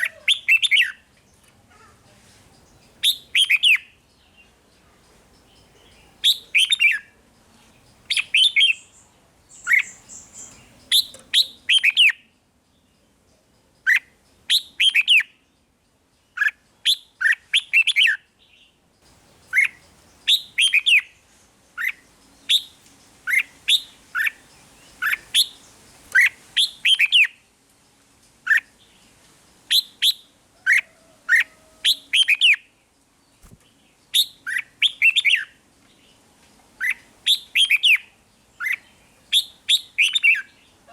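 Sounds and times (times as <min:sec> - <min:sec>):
bird singing whistled notes: 0:00.0 - 0:01.2, 0:02.6 - 0:04.5, 0:05.4 - 0:07.2, 0:08.0 - 0:12.9, 0:13.8 - 0:15.7, 0:16.3 - 0:18.8, 0:19.4 - 0:21.2, 0:21.8 - 0:27.5, 0:29.7 - 0:32.8, 0:33.4 - 0:36.2, 0:36.8 - 0:40.8.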